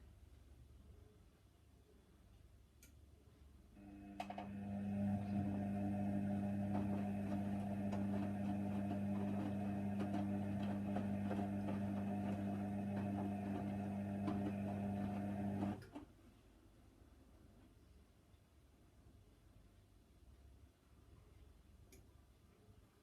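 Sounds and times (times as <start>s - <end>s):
washer dryer humming: 3.8s - 16.0s.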